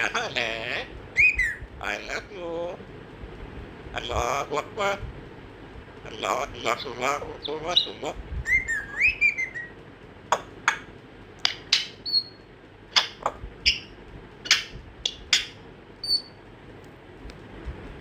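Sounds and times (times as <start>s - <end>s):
parrot whistles: 1.2s - 1.7s, 7.4s - 9.8s, 11.5s - 12.4s, 13.0s - 16.4s
parrot clicks and squeaks: 10.3s - 16.4s.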